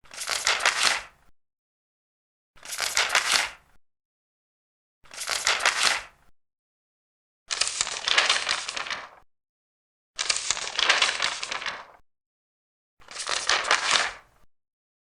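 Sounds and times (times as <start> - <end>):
paper pages turning: 0.1 - 1.1, 2.6 - 3.6, 5.1 - 6.1, 7.5 - 9.2, 10.2 - 12.0, 13.0 - 14.3.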